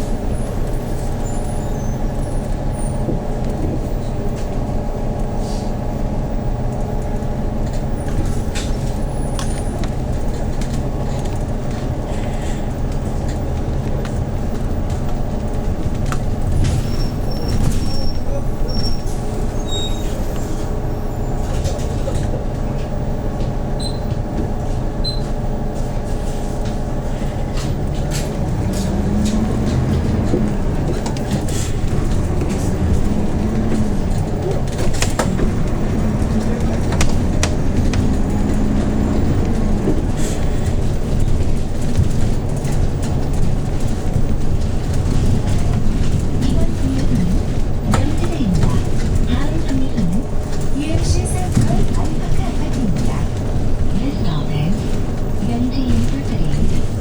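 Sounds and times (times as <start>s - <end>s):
bus engine running: 0.0s - 57.0s
cabin clicks and rattles: 26.6s - 53.9s.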